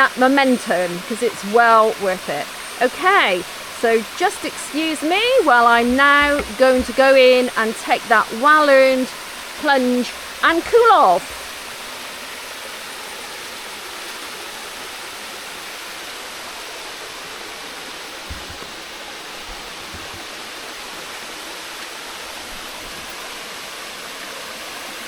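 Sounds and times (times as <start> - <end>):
waterfall pouring: 0.2 - 25.0
soft low thump: 5.7 - 7.2.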